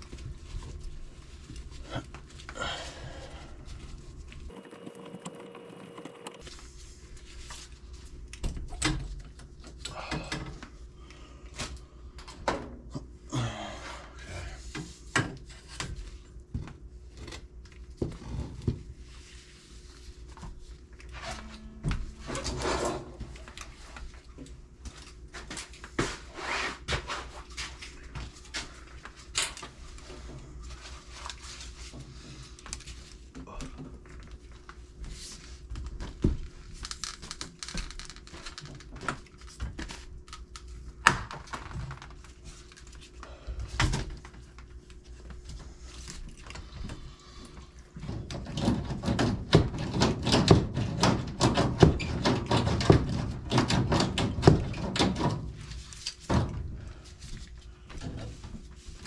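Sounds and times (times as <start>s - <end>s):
low steady hum: 16.1s - 25.1s.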